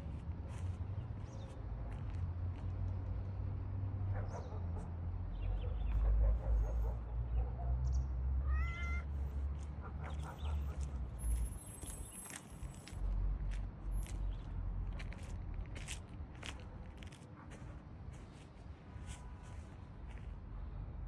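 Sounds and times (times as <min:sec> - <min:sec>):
cat meowing: 0:08.4 - 0:09.1.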